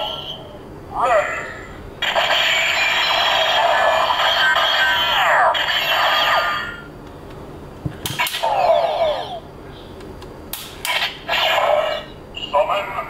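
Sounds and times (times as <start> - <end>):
toy electronic sound effects: 2.0 - 6.8, 8.2 - 9.4.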